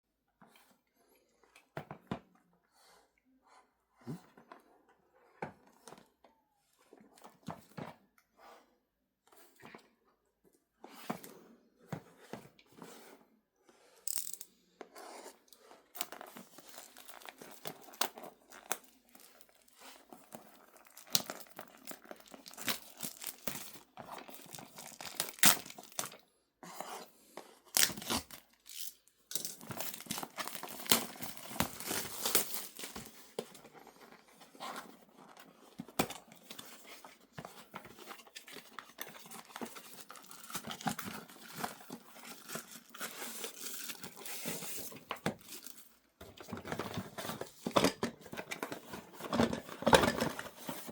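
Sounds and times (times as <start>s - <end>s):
paper and plastic tearing: 16.0s - 26.2s, 27.7s - 33.5s.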